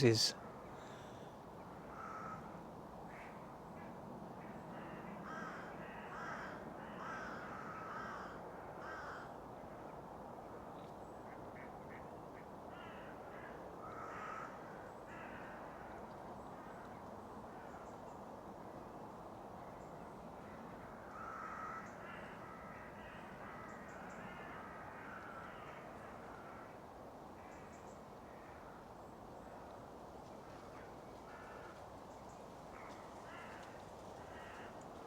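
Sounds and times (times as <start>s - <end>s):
faint outdoor hiss: 0.0s - 1.1s, 25.1s - 35.0s.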